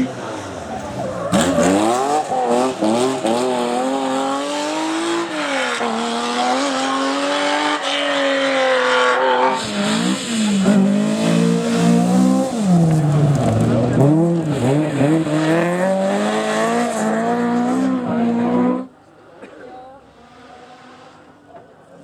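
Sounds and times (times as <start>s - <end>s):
rally car engine revving: 0.0s - 19.0s, 20.0s - 21.6s.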